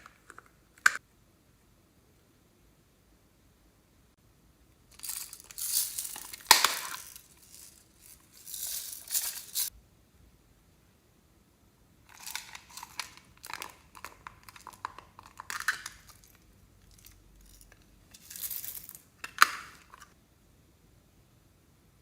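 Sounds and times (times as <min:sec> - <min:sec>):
plastic bags crinkling: 0:05.0 - 0:09.7, 0:12.1 - 0:16.4.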